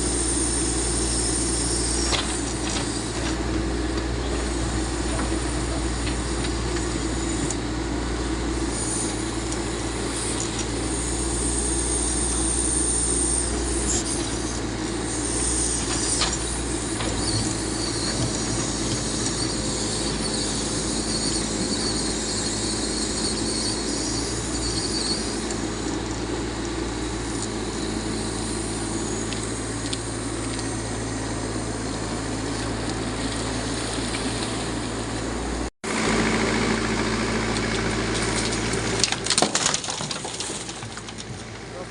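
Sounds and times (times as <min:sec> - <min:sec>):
diesel engine running: 0:00.0 - 0:41.9
high squeals: 0:08.6 - 0:26.1.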